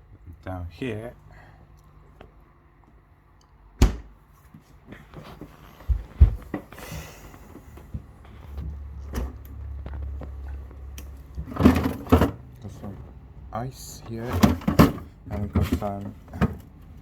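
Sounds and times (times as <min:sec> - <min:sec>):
knocks and clunks in freezer: 0:03.8 - 0:04.2, 0:05.8 - 0:10.8, 0:11.4 - 0:13.1, 0:14.0 - 0:16.9.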